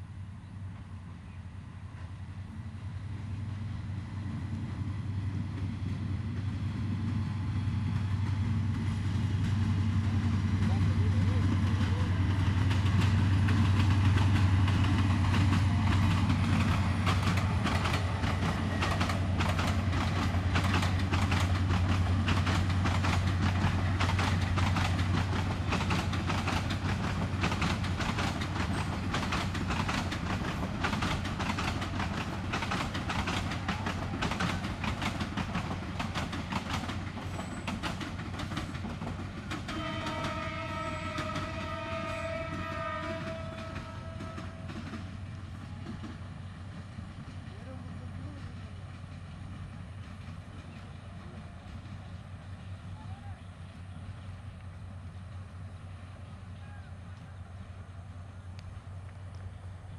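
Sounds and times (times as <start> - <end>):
locomotive engine hum: 0.0 - 59.9
train wheels clattering: 7.8 - 53.0
train horn: 39.5 - 45.2.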